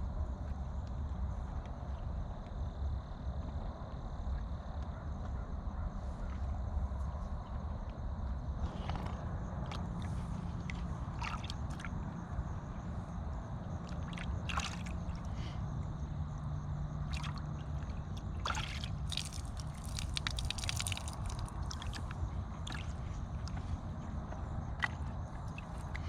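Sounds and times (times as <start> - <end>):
steady low rumble: 0.0 - 26.0
water sloshing and splashing: 8.6 - 15.6, 16.9 - 26.0
horse slurping: 18.5 - 23.0.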